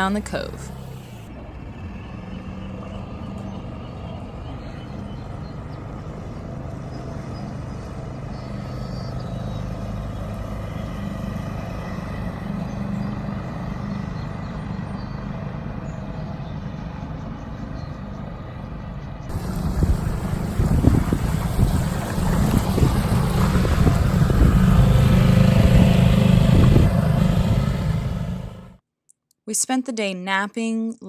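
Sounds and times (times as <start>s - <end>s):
outboard motor running: 0.0s - 16.2s, 19.3s - 28.8s.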